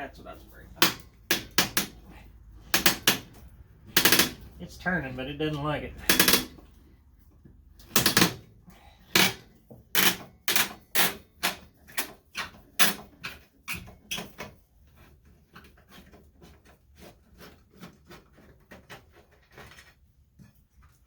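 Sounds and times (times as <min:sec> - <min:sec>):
screwdriver clicking on screw: 0:04.0 - 0:04.4.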